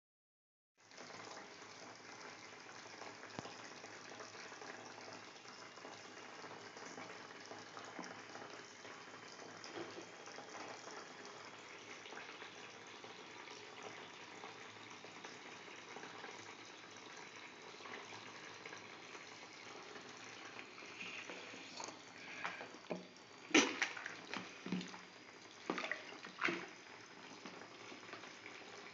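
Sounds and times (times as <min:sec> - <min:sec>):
tap water running into tub: 0:00.8 - 0:28.9
knocks and splashes: 0:22.9 - 0:25.0, 0:25.6 - 0:26.8.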